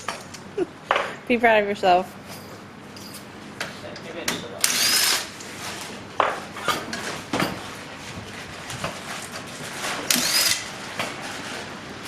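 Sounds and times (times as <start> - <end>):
metal tools clanking: 2.3 - 3.3.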